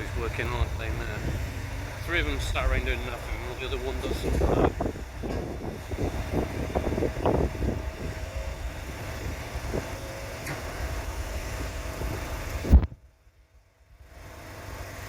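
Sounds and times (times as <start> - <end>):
faint voices: 0.0 - 4.9
wind rumbling on microphone: 0.0 - 13.1.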